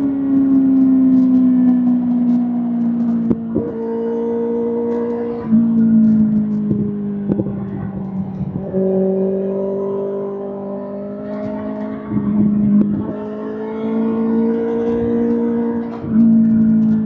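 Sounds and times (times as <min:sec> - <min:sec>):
motorcycle engine running: 0:11.4 - 0:17.0.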